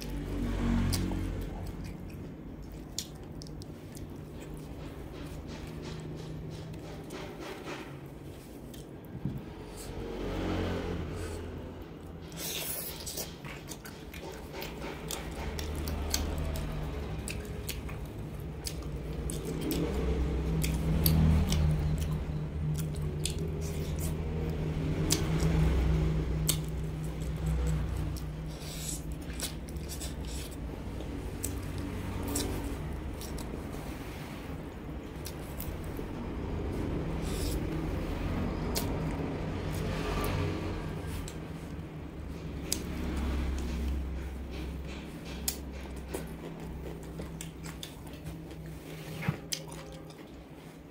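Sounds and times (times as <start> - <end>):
person chewing with mouth clicks: 0.0 - 4.7, 8.6 - 9.1, 12.2 - 33.9, 34.8 - 37.9, 38.5 - 41.8, 45.3 - 50.5.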